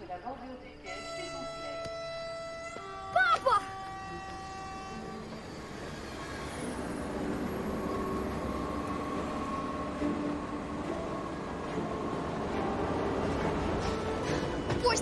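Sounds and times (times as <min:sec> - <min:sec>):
train rumbling on track: 0:03.7 - 0:15.0.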